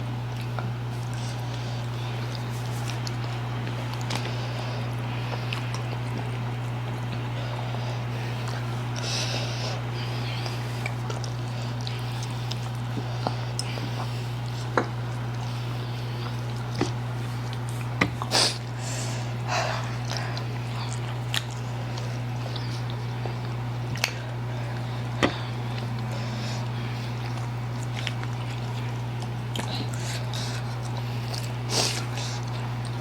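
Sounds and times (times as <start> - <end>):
low hum: 0.0 - 33.0
wet eating smacks and clicks: 0.3 - 7.7, 10.3 - 18.8, 19.8 - 33.0.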